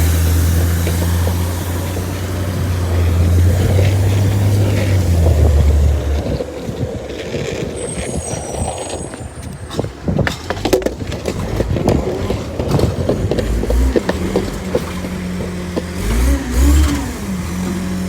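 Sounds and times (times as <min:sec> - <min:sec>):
garbage truck engine revving: 0:00.0 - 0:18.0
high squeal: 0:06.9 - 0:10.6.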